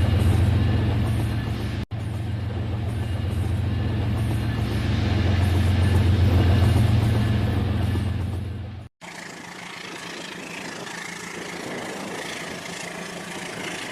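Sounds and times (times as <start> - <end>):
toy train motor hum: 9.0 - 13.9.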